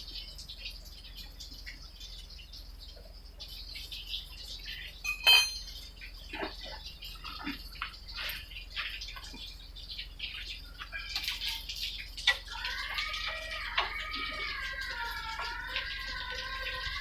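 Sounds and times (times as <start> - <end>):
faint high chirps: 3.4 - 6.0
metallic clink: 5.0 - 5.8.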